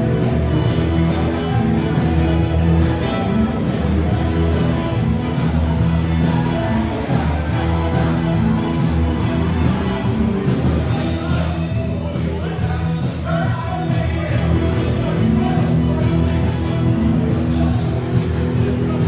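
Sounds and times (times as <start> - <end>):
live rock band playing: 0.0 - 19.0
person singing: 0.0 - 19.0.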